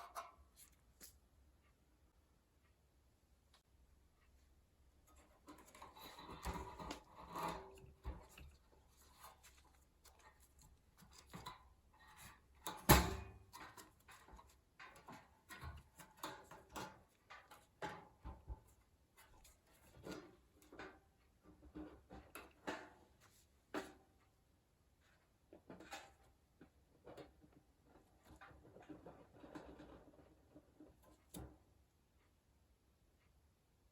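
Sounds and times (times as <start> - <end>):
objects being handled: 5.0 - 24.0.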